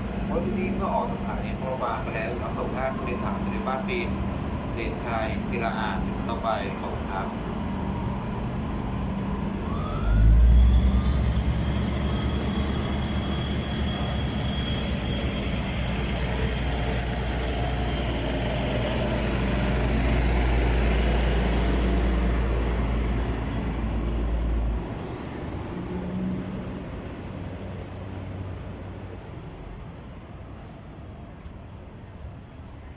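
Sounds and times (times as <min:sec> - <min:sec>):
diesel train engine rumble: 0:00.0 - 0:32.9.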